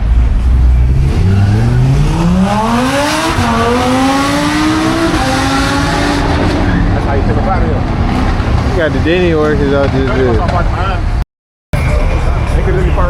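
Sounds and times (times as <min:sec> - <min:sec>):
car engine accelerating: 0:00.0 - 0:10.1.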